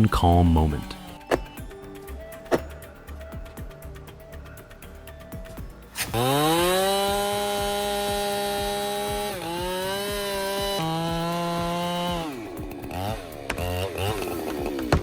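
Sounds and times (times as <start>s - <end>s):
chainsaw cutting: 5.9s - 15.0s.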